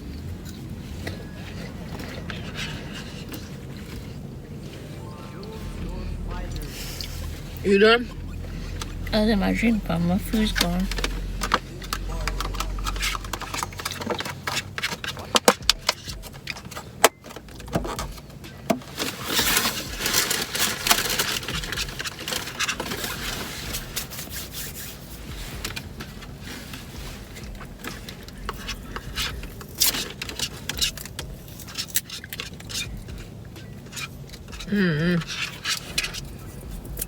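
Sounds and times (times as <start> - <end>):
handling clicks and scrapes: 0.0 - 37.0
rustling: 0.0 - 37.0.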